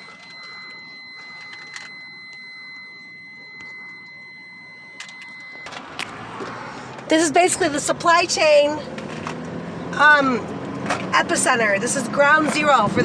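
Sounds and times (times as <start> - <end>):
high-pitched electronic tone: 0.0 - 5.8.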